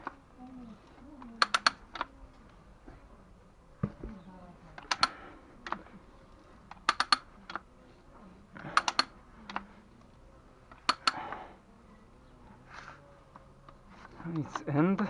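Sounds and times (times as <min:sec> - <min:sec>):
hard objects clicking: 0:00.0 - 0:02.6, 0:04.7 - 0:07.7, 0:08.5 - 0:11.5.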